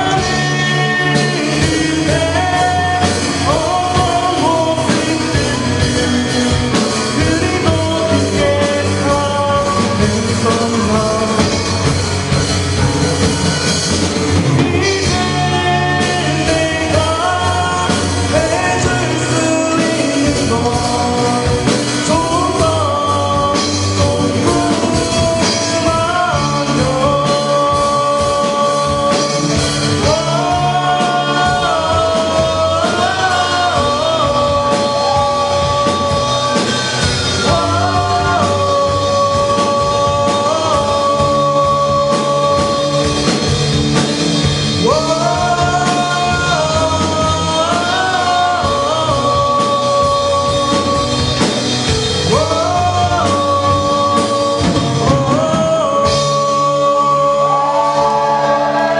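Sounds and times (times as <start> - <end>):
lead singer holding long notes: 0.0 - 58.9
rock band playing live: 0.0 - 58.9.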